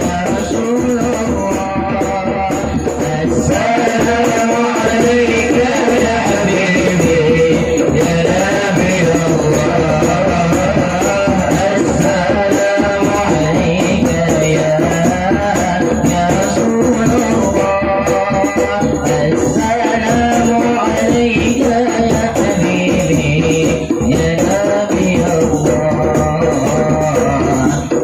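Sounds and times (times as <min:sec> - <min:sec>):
rapid hand percussion: 0:00.0 - 0:28.0.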